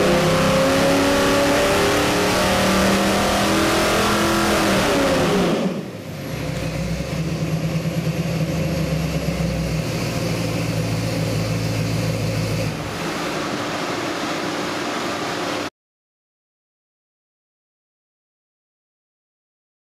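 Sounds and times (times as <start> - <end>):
engine revs dropping to idle: 0.0 - 15.7.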